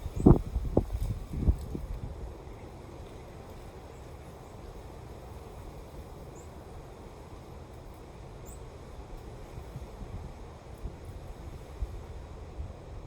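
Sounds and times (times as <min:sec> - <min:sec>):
wind blowing: 0:00.0 - 0:02.3
wind rumble on microphone: 0:00.0 - 0:02.7, 0:09.2 - 0:13.0.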